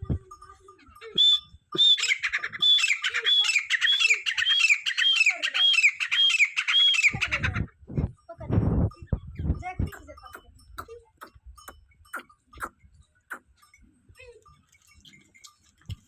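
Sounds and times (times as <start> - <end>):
francolin calling shrill notes: 1.0 - 7.2.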